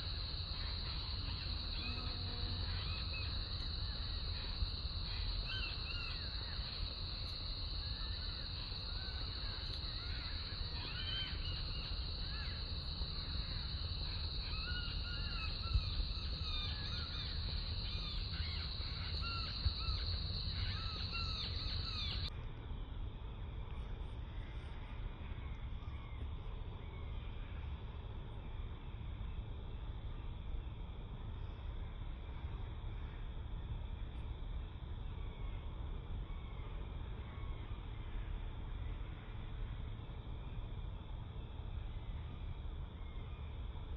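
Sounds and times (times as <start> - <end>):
high-pitched insect drone: 0.0 - 22.3.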